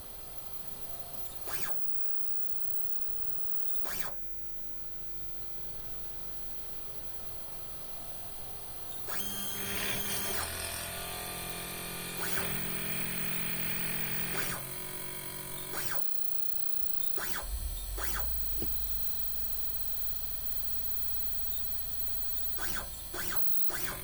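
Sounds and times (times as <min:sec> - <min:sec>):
electric drill whining: 0:07.6 - 0:24.0
sharp clicks: 0:12.0 - 0:19.8, 0:21.2 - 0:24.0.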